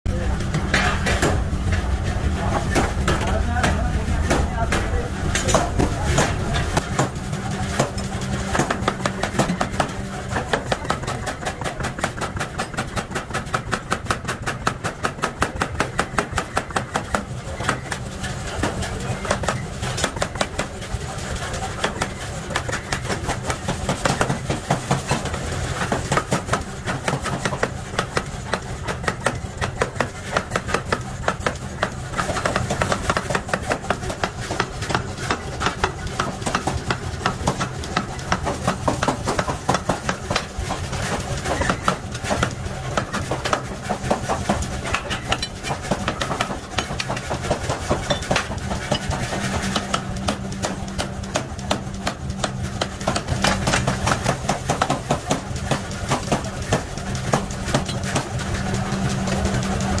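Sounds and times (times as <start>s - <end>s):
low machine hum: 0.1s - 60.0s
metal strikes: 0.3s - 10.0s.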